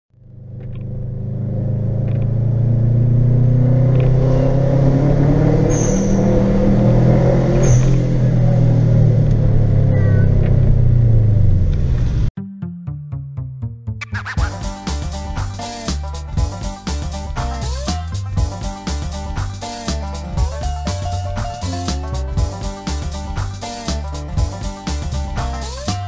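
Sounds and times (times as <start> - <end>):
car engine running: 0.1 - 12.3, 15.0 - 26.0.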